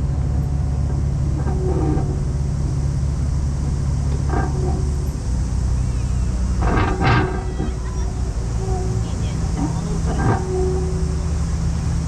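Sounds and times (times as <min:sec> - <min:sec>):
boat engine humming: 0:00.0 - 0:12.0
gull calling: 0:07.0 - 0:11.3.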